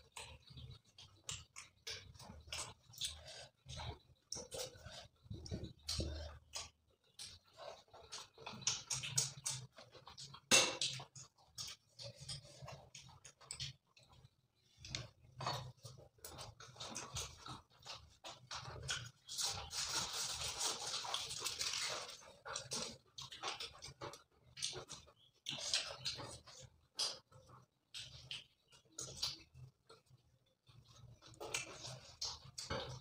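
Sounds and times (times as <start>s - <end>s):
wet chewing and lip-smacking: 0.0s - 33.0s
crinkling rustle: 15.5s - 24.2s.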